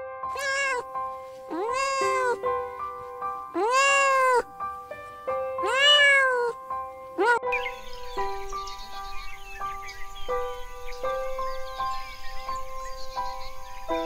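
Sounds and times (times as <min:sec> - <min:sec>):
soft background music: 0:00.1 - 0:14.0
cat meowing: 0:00.3 - 0:02.7, 0:03.5 - 0:04.6, 0:05.6 - 0:06.6, 0:07.2 - 0:07.4.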